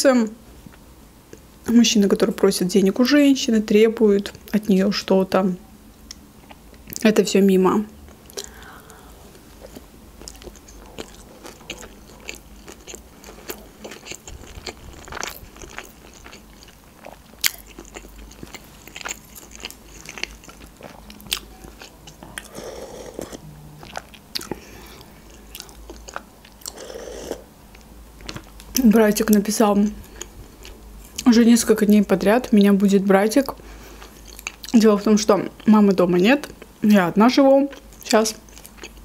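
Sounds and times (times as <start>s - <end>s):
crunchy food chewing: 8.0s - 29.4s, 33.9s - 34.8s, 37.7s - 39.0s
soup being sipped: 22.4s - 25.2s, 26.7s - 27.4s.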